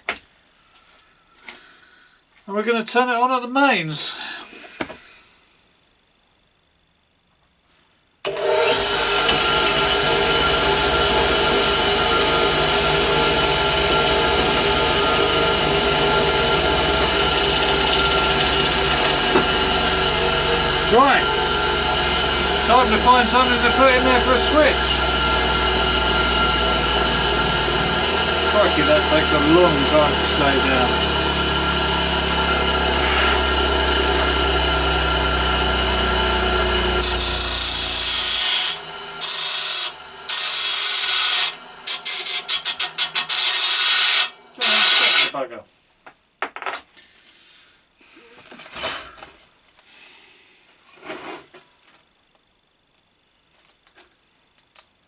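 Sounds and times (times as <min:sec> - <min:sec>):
whirring noise: 0:08.3 - 0:41.4
bench grinder motor hum: 0:08.3 - 0:45.3.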